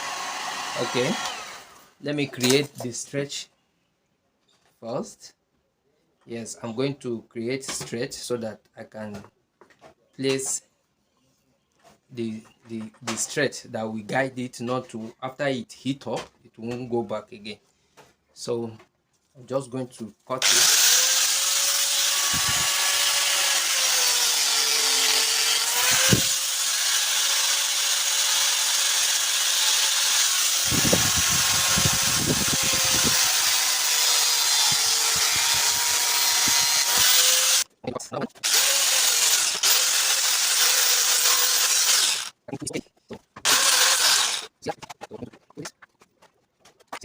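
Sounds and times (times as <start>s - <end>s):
power tool whining: 0.0s - 2.0s, 20.4s - 37.7s, 38.4s - 42.4s, 43.4s - 44.5s.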